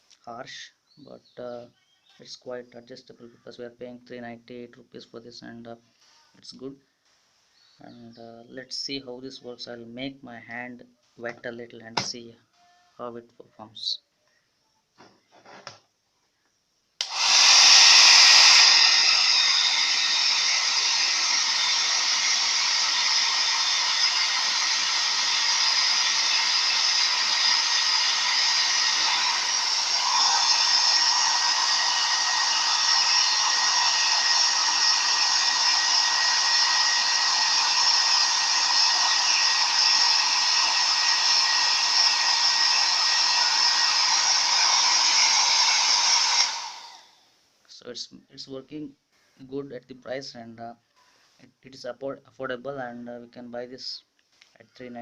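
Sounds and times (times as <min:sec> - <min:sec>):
hair dryer blowing: 0:17.0 - 0:47.2.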